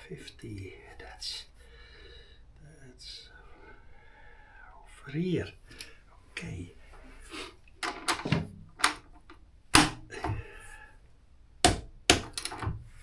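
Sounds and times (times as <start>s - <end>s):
torque wrench metallic clicks: 11.7s - 12.7s.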